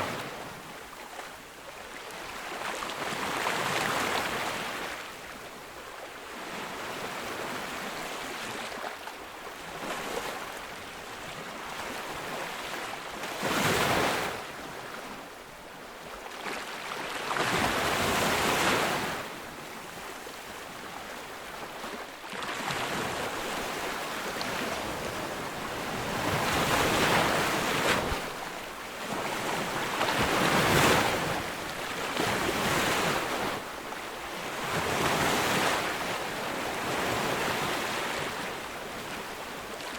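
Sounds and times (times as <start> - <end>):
ocean waves breaking: 16.5 - 39.9.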